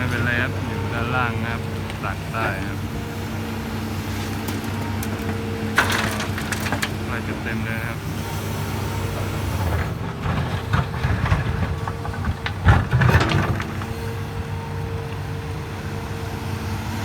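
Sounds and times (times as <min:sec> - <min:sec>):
excavator diesel engine running: 0:00.0 - 0:17.0
load dumped into truck bed: 0:04.1 - 0:08.0.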